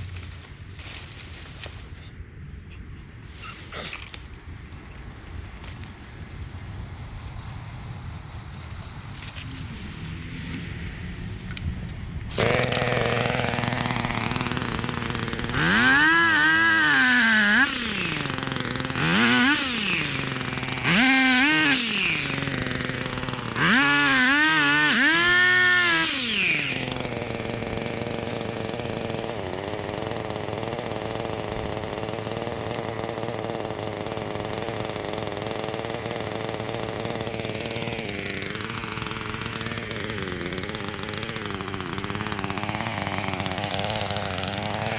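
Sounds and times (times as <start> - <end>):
engine revving: 12.3 - 44.9.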